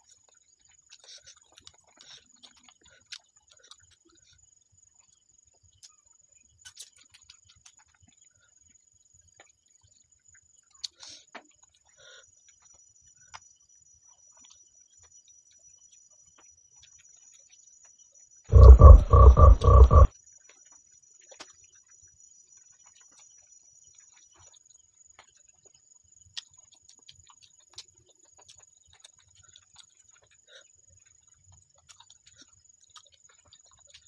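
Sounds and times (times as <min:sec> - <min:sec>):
faint chewing mouth noises: 0:00.0 - 0:17.7, 0:18.5 - 0:21.9, 0:22.6 - 0:34.0
high-pitched whine: 0:18.5 - 0:20.1.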